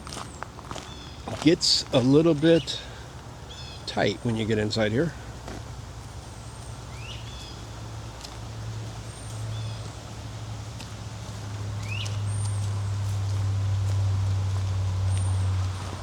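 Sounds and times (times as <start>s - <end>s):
bird chirping: 3.5s - 4.9s, 11.8s - 12.6s.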